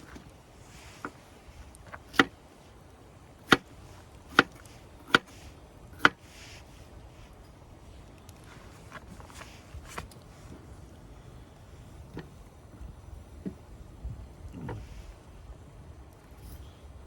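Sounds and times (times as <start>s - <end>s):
sharp chopping strikes: 3.4s - 3.7s, 4.3s - 5.4s.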